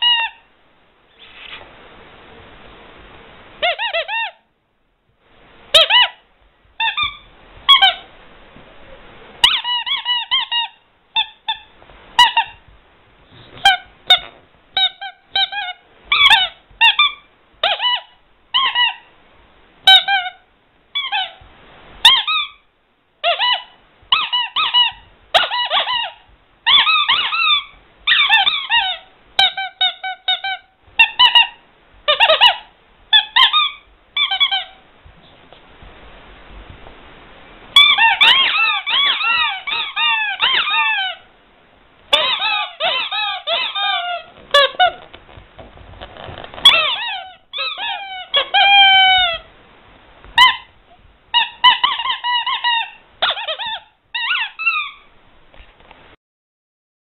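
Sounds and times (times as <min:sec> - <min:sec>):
squeaky rubber toy squeaking: 0:00.0 - 0:00.4, 0:03.6 - 0:04.4, 0:05.7 - 0:06.2, 0:06.8 - 0:08.1, 0:09.4 - 0:12.6, 0:13.6 - 0:19.1, 0:19.8 - 0:20.4, 0:21.0 - 0:21.4, 0:22.0 - 0:22.6, 0:23.2 - 0:34.8, 0:37.8 - 0:41.3, 0:42.1 - 0:45.1, 0:46.0 - 0:49.5, 0:50.4 - 0:55.1.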